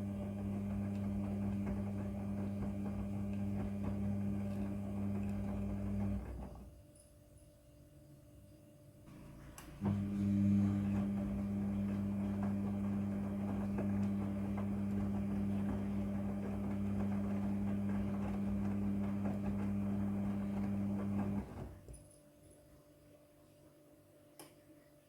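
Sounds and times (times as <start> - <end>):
washing machine humming: 0.0 - 6.8, 9.1 - 22.1.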